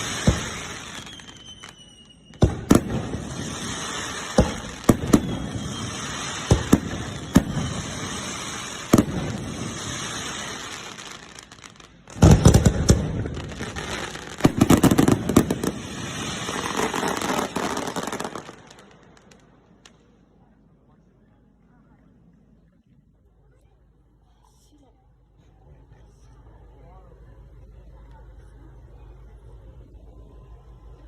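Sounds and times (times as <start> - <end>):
fireworks booming: 0.0 - 20.2
fireworks crackling: 0.0 - 20.2.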